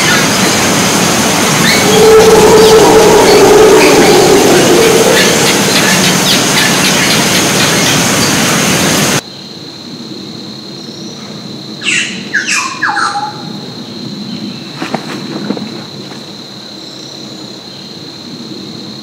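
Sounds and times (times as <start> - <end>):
loud steady rushing noise: 0.0 - 9.2
bird calls sweeping down in pitch: 1.6 - 7.9
steady high tone: 1.8 - 6.9.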